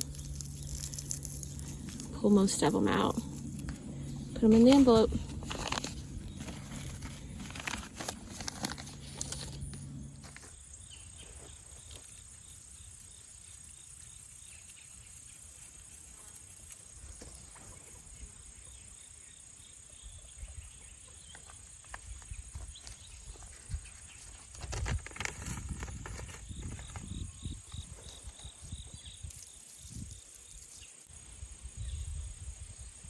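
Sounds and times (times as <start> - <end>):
paper rustling: 0.0 - 10.4, 24.2 - 27.1
insect drone: 0.0 - 33.0.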